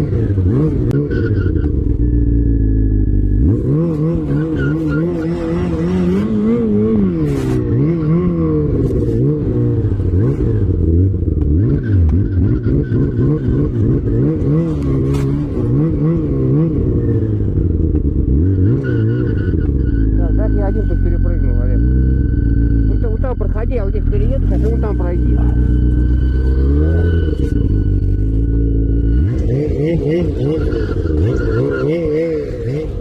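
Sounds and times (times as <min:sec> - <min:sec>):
off-road vehicle engine revving: 0:00.0 - 0:33.0.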